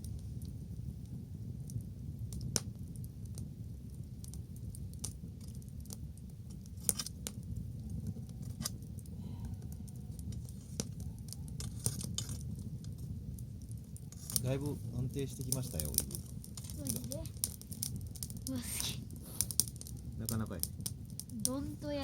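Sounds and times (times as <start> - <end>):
bonfire crackling and popping: 0.0 - 22.0
low rumble: 0.0 - 22.0.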